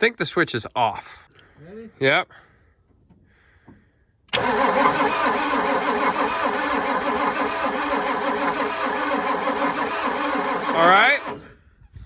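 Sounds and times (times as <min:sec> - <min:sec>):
diesel engine cranked by starter: 0:04.3 - 0:11.6.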